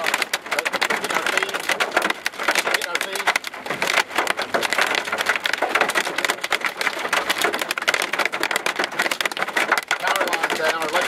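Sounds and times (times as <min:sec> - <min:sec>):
hail pelting a vehicle: 0:00.0 - 0:11.0.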